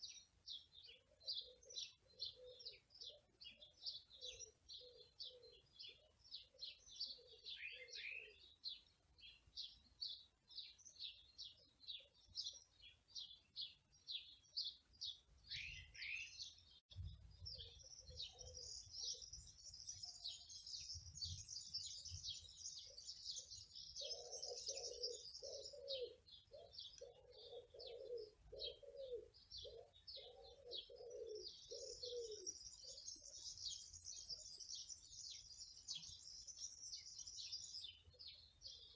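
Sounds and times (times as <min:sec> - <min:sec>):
small birds chirping: 0:00.0 - 0:38.9
dove cooing: 0:01.2 - 0:03.2, 0:24.0 - 0:33.0.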